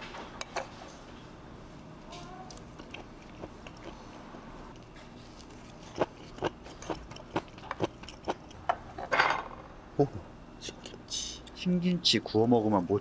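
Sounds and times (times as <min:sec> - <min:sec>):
low room hum: 0:00.0 - 0:13.0
man chewing food: 0:00.1 - 0:08.9.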